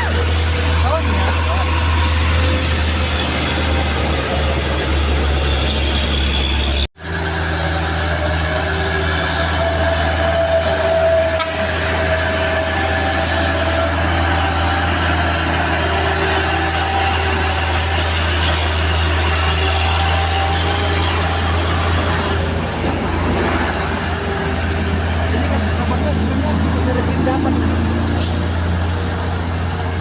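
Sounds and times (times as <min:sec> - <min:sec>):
truck engine droning: 0:00.0 - 0:30.0.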